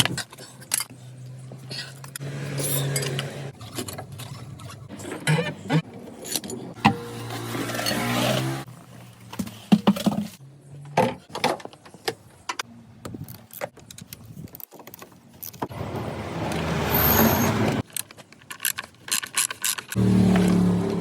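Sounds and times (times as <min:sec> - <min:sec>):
metal tools clinking: 0:01.9 - 0:05.1.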